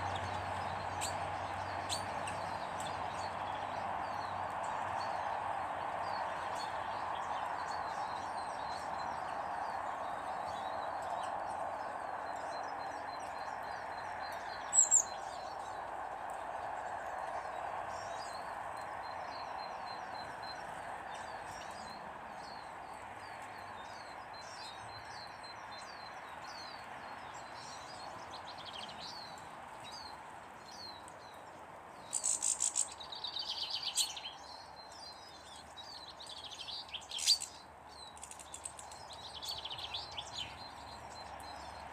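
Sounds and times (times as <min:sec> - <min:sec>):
small birds chirping: 0:00.0 - 0:41.9
steady background noise: 0:00.0 - 0:41.9.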